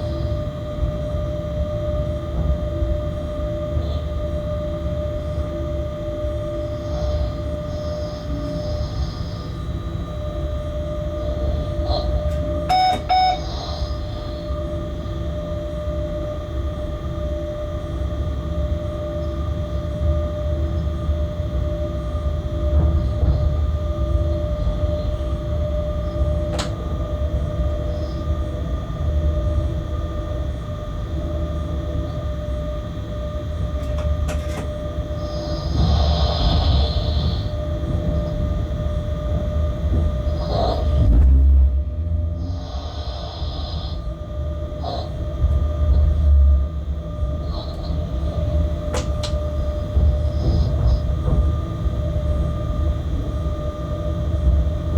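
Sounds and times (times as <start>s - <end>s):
locomotive cab rumble and whine: 0.0s - 54.9s
locomotive and wheels rumbling: 33.6s - 54.9s.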